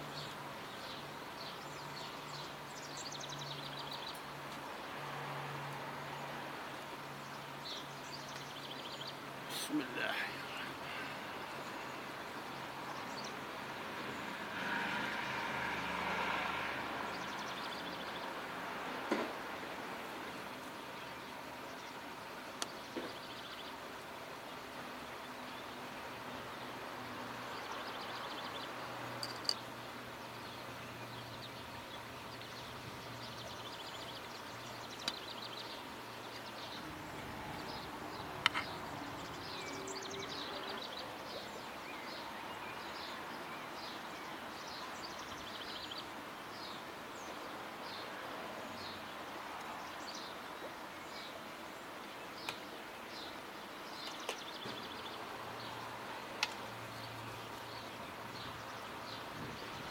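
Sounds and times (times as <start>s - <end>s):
small birds chirping: 7.1s - 13.4s, 27.4s - 59.9s.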